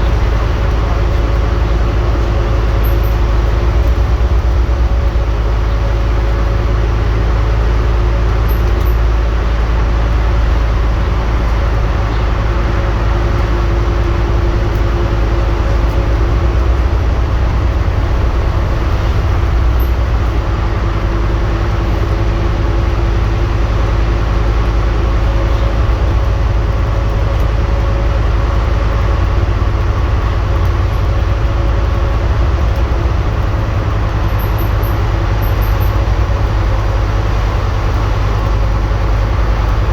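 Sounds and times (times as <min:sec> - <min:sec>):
bus diesel engine rumbling: 0:00.0 - 0:39.9.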